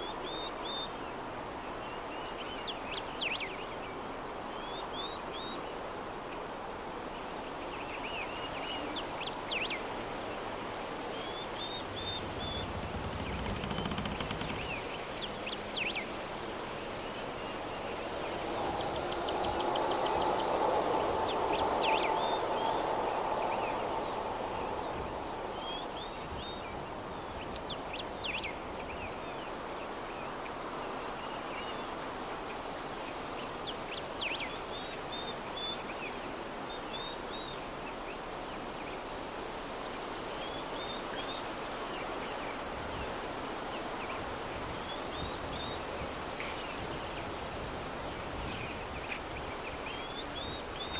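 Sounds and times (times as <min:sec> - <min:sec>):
soft steady breeze: 0:00.0 - 0:50.9
small birds chirping: 0:10.8 - 0:16.2
swell with faint tone: 0:11.4 - 0:15.9, 0:17.8 - 0:26.3.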